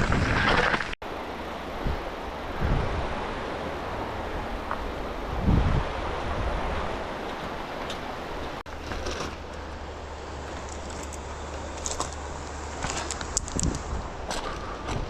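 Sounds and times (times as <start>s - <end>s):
wind on microphone: 0.0s - 0.9s, 1.7s - 7.3s, 13.2s - 15.0s.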